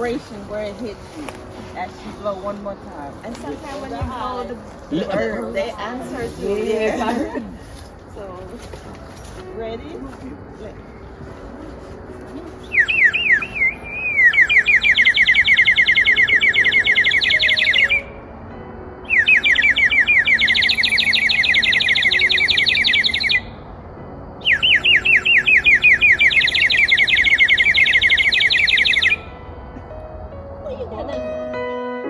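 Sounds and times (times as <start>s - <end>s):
water bird whistle warbling: 12.6s - 18.1s, 19.1s - 23.5s, 24.4s - 29.3s.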